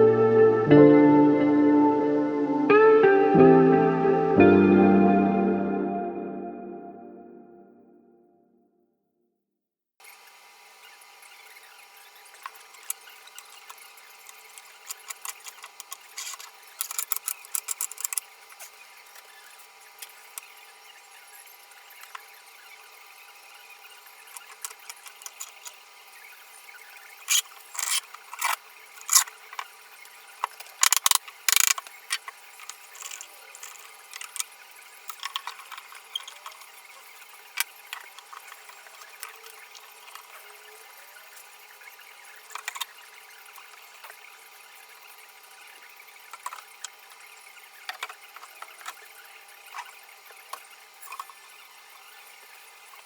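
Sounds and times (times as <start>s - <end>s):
tools and wood clicking and knocking: 14.6s - 18.3s, 30.4s - 34.5s, 35.1s - 36.6s.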